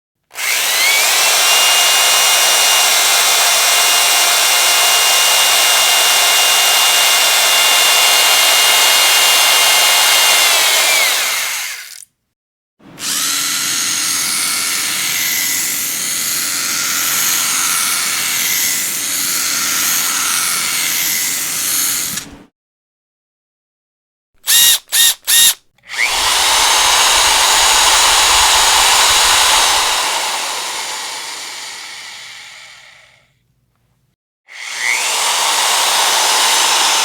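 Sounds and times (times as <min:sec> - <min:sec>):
electric power drill running: 0:00.3 - 0:12.0, 0:12.9 - 0:22.3, 0:24.4 - 0:33.2, 0:34.5 - 0:37.0.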